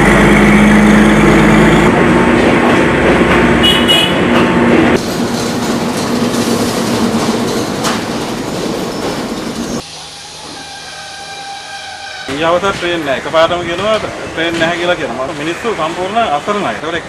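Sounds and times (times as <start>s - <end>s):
train carriages rattling on rails: 2.0s - 9.8s, 12.4s - 16.3s
high squeal: 8.8s - 13.0s.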